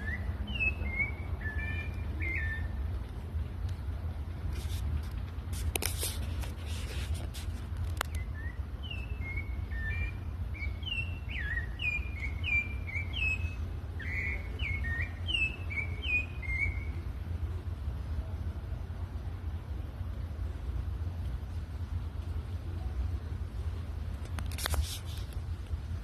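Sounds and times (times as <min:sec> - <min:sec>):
thrushes singing: 0:00.0 - 0:03.2, 0:07.9 - 0:17.6
steady low rumble: 0:00.0 - 0:26.0
rustling: 0:04.5 - 0:08.2.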